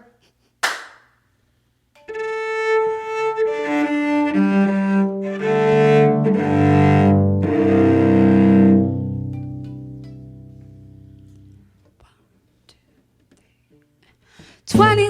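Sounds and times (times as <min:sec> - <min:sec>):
bowed cello notes: 0:02.0 - 0:11.6.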